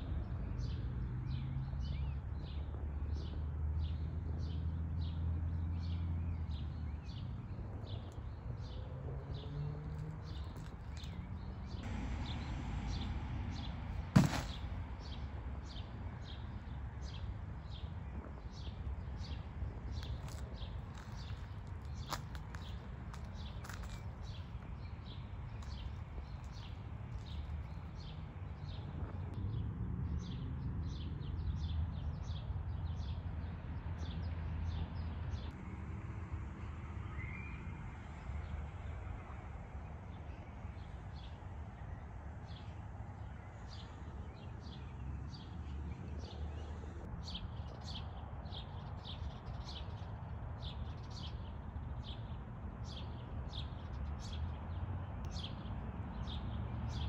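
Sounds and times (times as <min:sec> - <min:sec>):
low outdoor rumble: 0:06.7 - 0:30.2
low rumble: 0:11.7 - 0:15.5.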